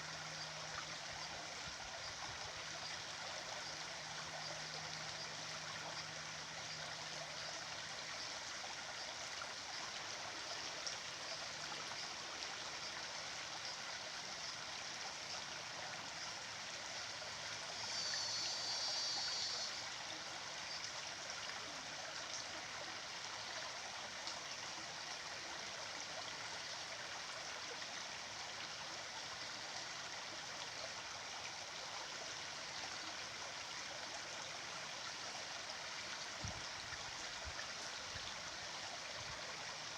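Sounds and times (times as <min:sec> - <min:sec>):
stream of running water: 0:00.0 - 0:39.9.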